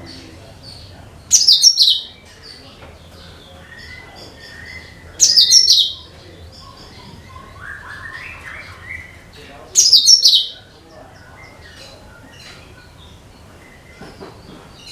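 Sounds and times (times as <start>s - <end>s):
bird chirping rapidly: 0.0s - 14.9s
bird whistled notes: 3.6s - 6.1s.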